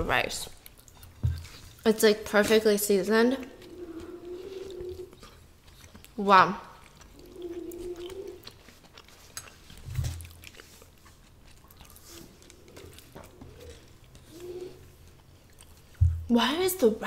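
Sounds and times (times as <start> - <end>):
person chewing food: 0.5 - 1.9, 3.1 - 16.3
wet mouth clicks: 6.8 - 16.0.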